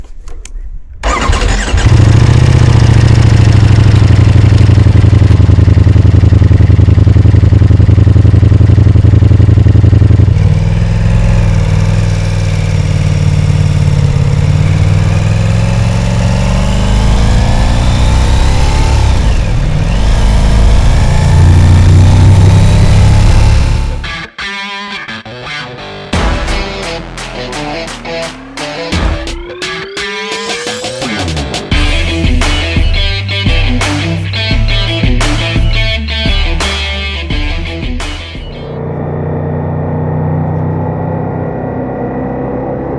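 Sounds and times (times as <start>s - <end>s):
motorcycle engine running: 1.0s - 24.3s, 37.3s - 42.9s.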